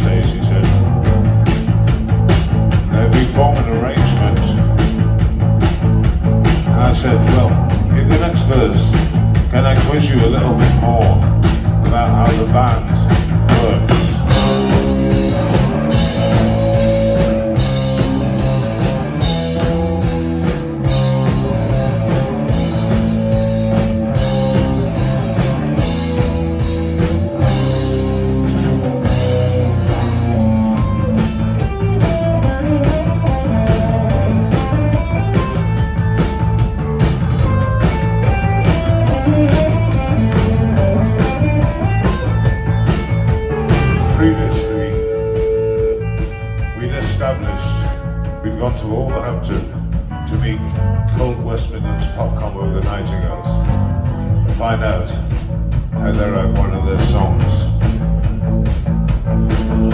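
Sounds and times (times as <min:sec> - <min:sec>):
drum kit beat: 0:00.0 - 0:59.9
electric guitar riffing: 0:00.0 - 0:59.9.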